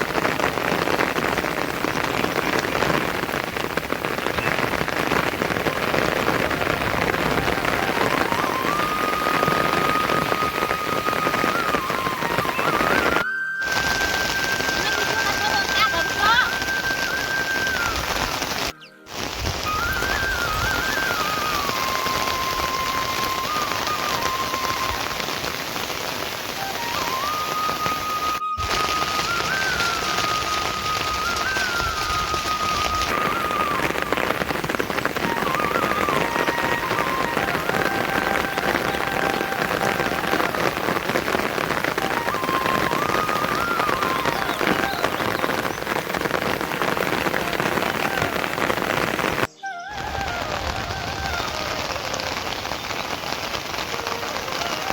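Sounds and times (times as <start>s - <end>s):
rain pattering: 0.0s - 54.9s.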